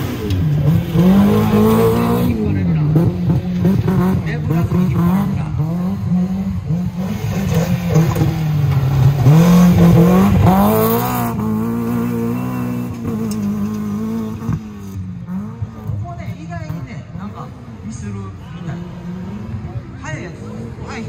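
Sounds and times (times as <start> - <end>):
engine revving hard: 0.0 - 16.0.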